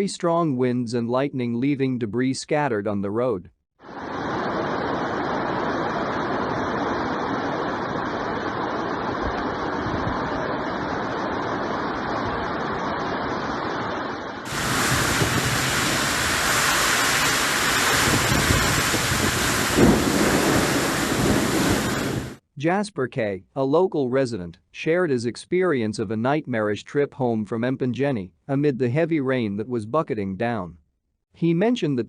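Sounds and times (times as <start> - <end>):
storm wind: 3.8 - 22.4
heavy rain: 3.9 - 22.4
wind buffeting microphone: 9.1 - 10.8, 14.5 - 22.4.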